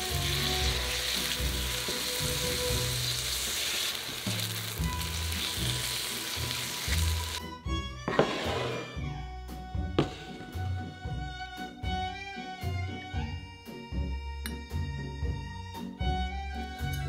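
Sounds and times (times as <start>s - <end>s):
vegetables sizzling in a pan: 0.0s - 7.4s.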